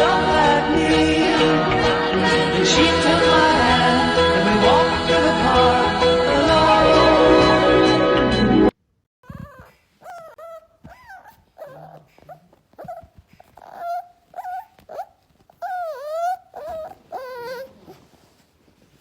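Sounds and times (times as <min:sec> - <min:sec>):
dog whining: 0:09.2 - 0:18.4.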